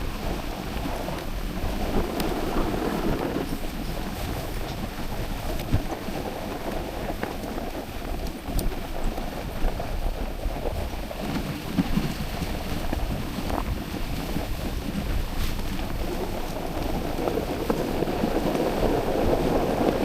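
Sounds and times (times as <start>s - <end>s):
dog sled moving across snow: 0.0s - 20.0s
wind buffeting microphone: 0.0s - 20.0s.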